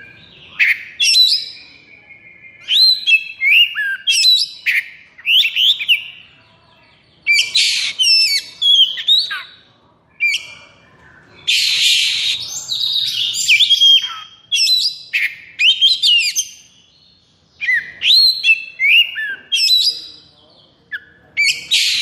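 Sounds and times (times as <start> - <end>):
bird singing whistled notes: 0.0 - 6.3, 7.2 - 9.6, 11.4 - 22.0
bird harsh rasping call: 7.3 - 9.6, 11.4 - 16.7, 20.9 - 22.0.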